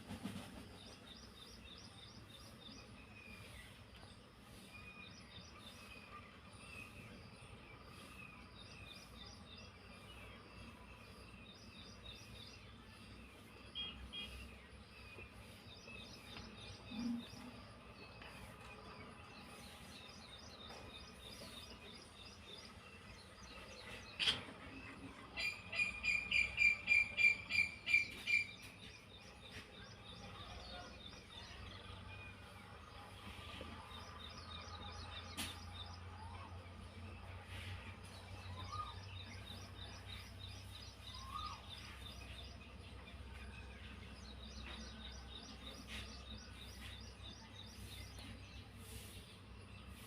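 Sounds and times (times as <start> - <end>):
small birds chirping: 0.2 - 50.0.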